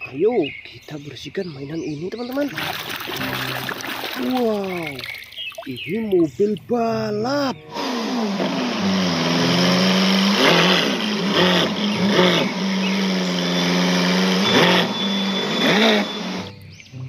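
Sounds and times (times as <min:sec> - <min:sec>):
car engine revs blipping: 0:07.5 - 0:16.7.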